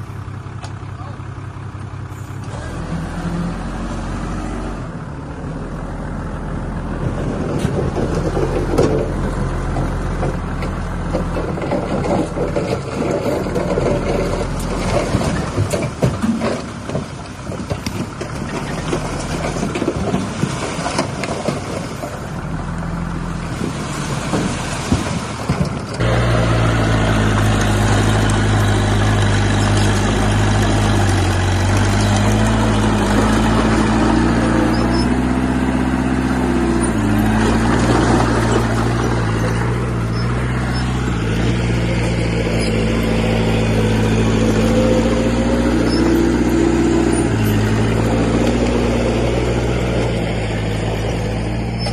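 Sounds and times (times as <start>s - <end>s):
diesel engine of heavy machinery: 0.0s - 51.9s
knocks and rattles: 7.1s - 22.4s, 23.5s - 26.1s.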